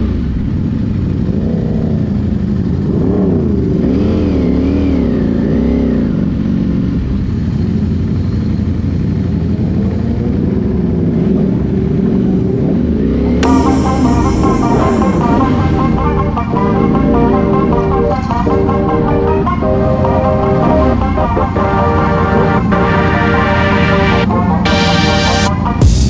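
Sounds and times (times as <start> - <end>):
motorcycle engines at low speed: 0.0 - 26.0
music: 13.4 - 26.0.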